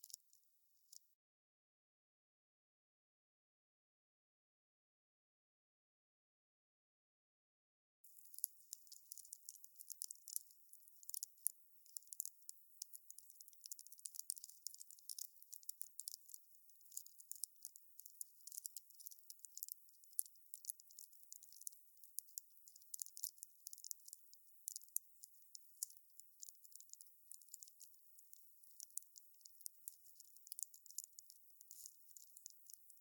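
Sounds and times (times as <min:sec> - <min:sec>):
wood fire crackling: 0:08.1 - 0:33.0.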